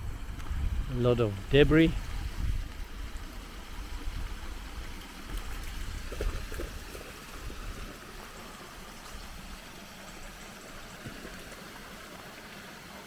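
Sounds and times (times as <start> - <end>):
low rumble on microphone: 0.0 - 8.1
creek water trickling: 0.0 - 13.0.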